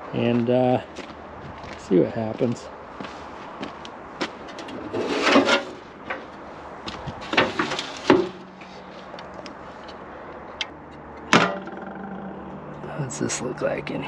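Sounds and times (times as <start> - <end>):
object clunking and clattering: 7.3 - 8.7, 11.2 - 12.8.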